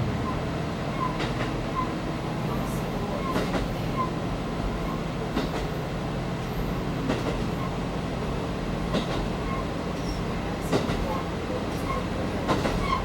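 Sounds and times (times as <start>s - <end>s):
train engine rumble: 0.0s - 13.0s.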